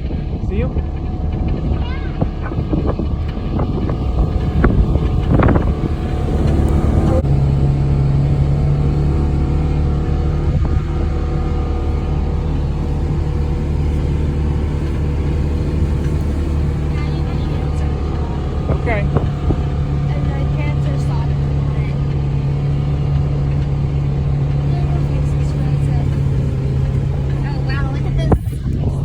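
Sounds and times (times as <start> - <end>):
knocks and rattles: 0.0 - 29.0
off-road vehicle engine running: 0.0 - 29.0.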